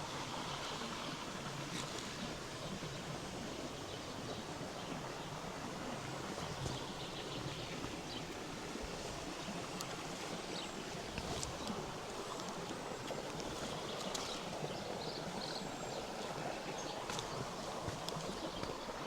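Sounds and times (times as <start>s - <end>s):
river water flowing over rocks: 0.0s - 19.0s.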